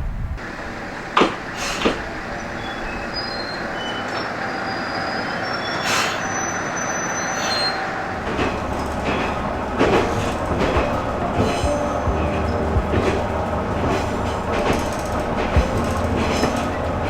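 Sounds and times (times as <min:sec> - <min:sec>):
train rail noise: 0:00.0 - 0:17.0
wheel squeals: 0:01.4 - 0:17.0
deep rumble: 0:08.2 - 0:17.0
wheel knocks: 0:08.2 - 0:17.0.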